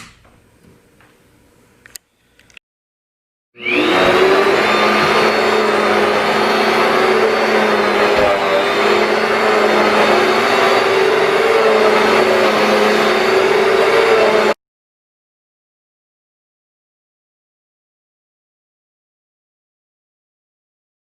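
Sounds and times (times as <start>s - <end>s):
vacuum cleaner running: 3.6s - 14.6s.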